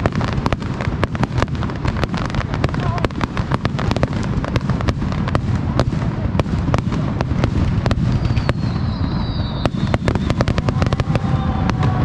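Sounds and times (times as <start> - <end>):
fireworks cracking and banging: 0.0 - 12.0
low rumble of bursting shells: 0.0 - 12.0
faint falling whistle: 8.1 - 12.0.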